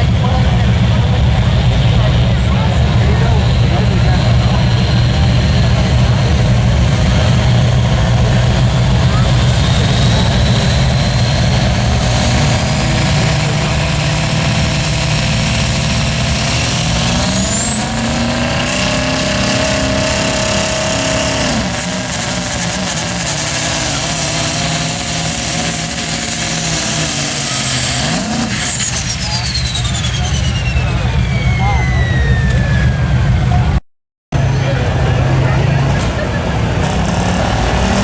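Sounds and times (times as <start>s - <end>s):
diesel truck engine at full throttle: 0.0s - 38.0s
high turbo whistle: 7.3s - 33.8s.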